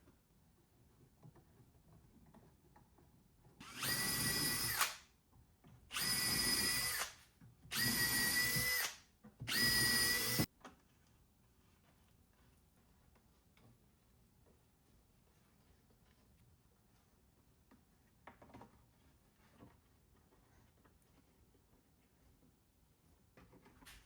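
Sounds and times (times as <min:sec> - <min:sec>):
power drill whine: 0:03.6 - 0:05.0, 0:05.9 - 0:10.5.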